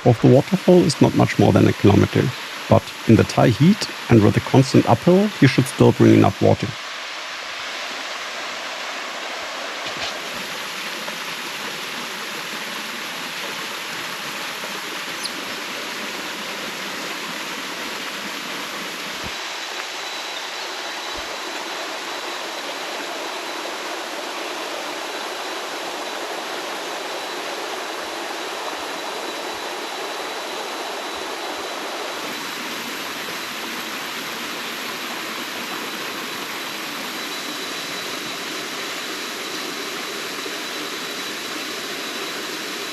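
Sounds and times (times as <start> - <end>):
waterfall rushing over rocks: 0.0 - 42.9.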